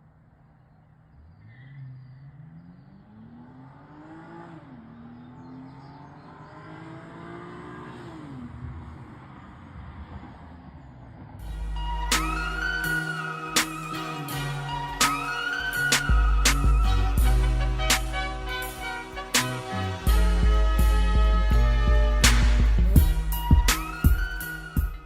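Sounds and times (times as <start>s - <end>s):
car engine accelerating: 1.0s - 25.0s
loud music: 11.4s - 25.0s.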